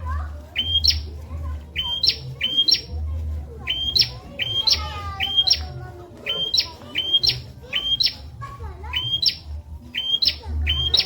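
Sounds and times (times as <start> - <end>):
bird calling: 0.5 - 1.2, 1.8 - 3.0, 3.7 - 8.3, 8.9 - 11.0.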